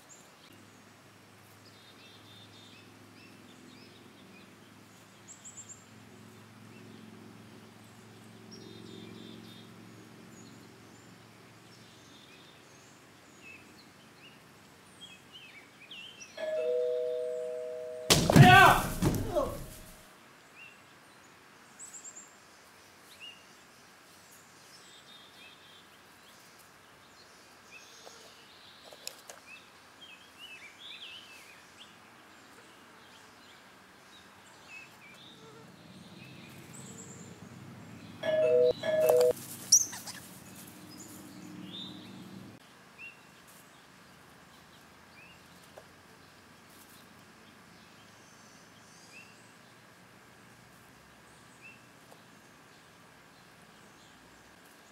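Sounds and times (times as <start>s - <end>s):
doorbell chime: 16.4s - 18.1s, 38.2s - 39.4s
small birds chirping: 20.6s - 49.8s.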